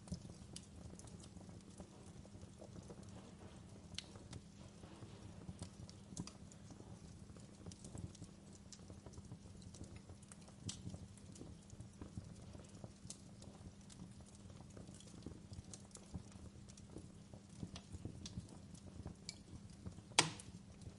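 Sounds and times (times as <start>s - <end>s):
low rumble of flames: 0.0s - 20.9s
wood fire crackling and popping: 0.0s - 20.9s.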